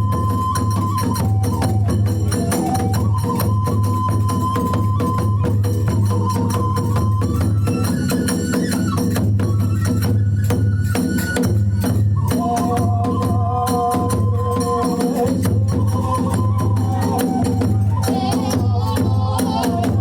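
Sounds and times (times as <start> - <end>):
bamboo flute long notes: 0.0 - 20.0
rapid drum beating: 13.8 - 20.0.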